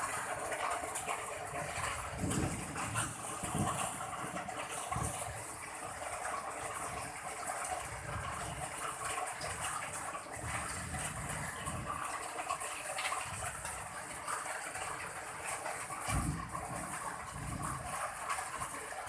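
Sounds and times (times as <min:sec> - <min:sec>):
heavy rain pouring: 0:00.0 - 0:19.0
rumbling wind gusts: 0:01.5 - 0:07.1, 0:10.3 - 0:12.2, 0:16.0 - 0:18.7.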